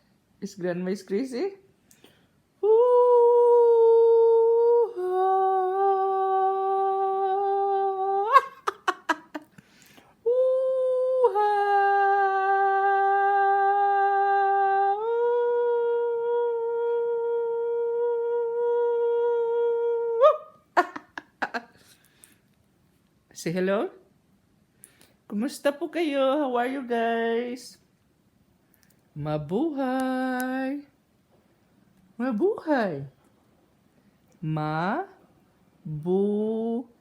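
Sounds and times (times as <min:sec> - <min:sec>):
person humming long notes: 0:02.6 - 0:09.4, 0:10.2 - 0:21.6.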